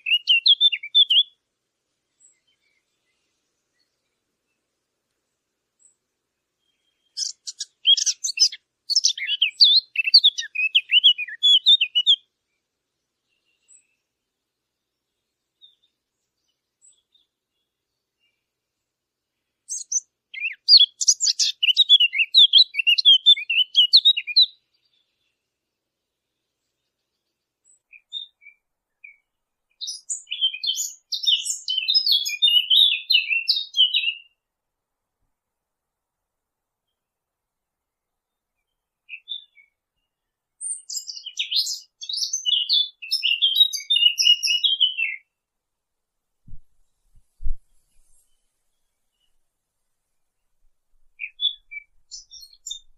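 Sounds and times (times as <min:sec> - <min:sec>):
songbird twittering warble: 0:00.0 - 0:01.4, 0:06.6 - 0:12.2, 0:19.7 - 0:25.4, 0:26.4 - 0:34.3, 0:40.6 - 0:45.3, 0:51.2 - 0:52.9.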